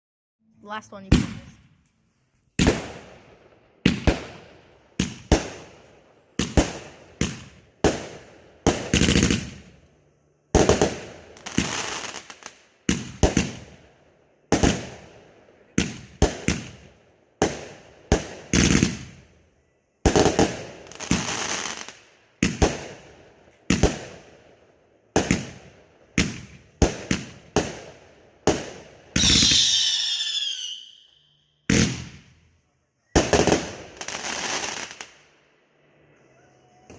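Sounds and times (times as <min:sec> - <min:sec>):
fireworks bangs: 0:00.7 - 0:01.8, 0:02.6 - 0:09.8, 0:10.5 - 0:13.8, 0:14.5 - 0:19.3, 0:20.0 - 0:24.3, 0:25.1 - 0:31.1, 0:31.7 - 0:32.4, 0:33.1 - 0:35.2
fireworks crackle: 0:10.6 - 0:13.6, 0:20.1 - 0:23.0, 0:28.5 - 0:30.9, 0:33.2 - 0:35.2
wavering high whistle: 0:29.2 - 0:31.4.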